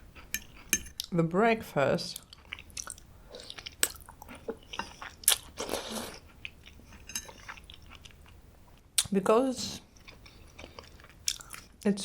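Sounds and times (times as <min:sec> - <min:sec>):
chewing food: 0:00.2 - 0:01.2, 0:02.2 - 0:09.1, 0:09.8 - 0:11.8.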